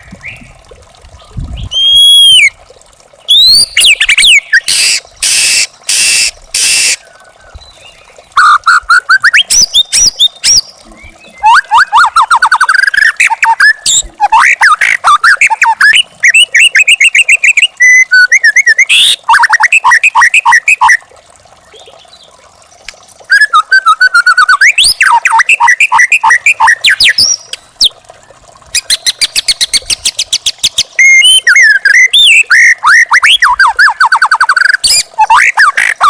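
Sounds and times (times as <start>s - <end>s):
bird singing whistles: 1.6s - 2.5s, 3.3s - 5.6s, 23.3s - 27.5s.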